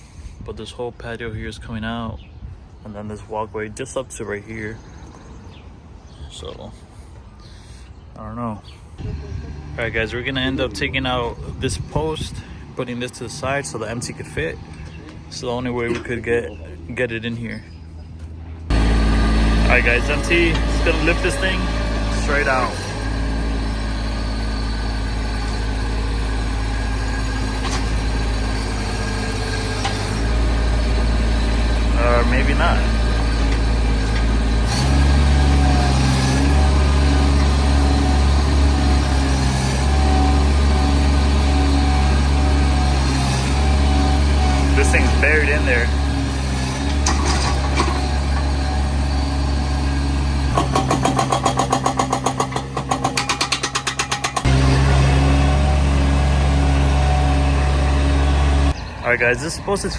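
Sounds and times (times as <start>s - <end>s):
loader engine running: 9.0s - 59.9s
rapid mechanical hammering: 50.5s - 54.6s.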